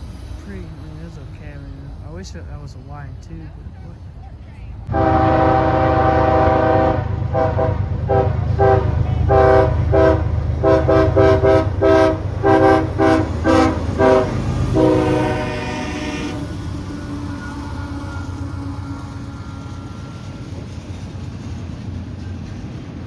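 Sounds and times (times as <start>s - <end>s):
passing train rumble: 0.0s - 23.0s
locomotive air horn: 4.9s - 21.0s.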